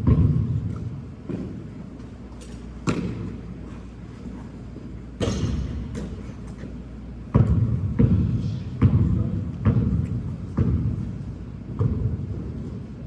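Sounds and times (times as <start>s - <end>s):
basketball bouncing on hard court: 0.0s - 1.6s, 2.8s - 3.3s, 5.2s - 6.3s, 7.3s - 12.6s.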